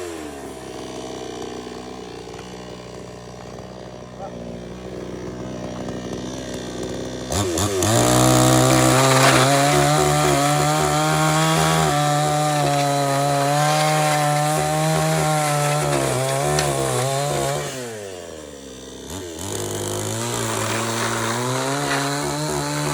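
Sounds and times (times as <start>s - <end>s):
chainsaw revving: 0.0s - 22.9s.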